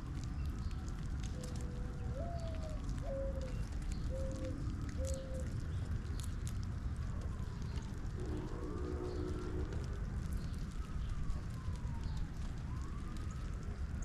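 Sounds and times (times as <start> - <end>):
low background rumble: 0.0 - 14.0
dove cooing: 1.3 - 5.6.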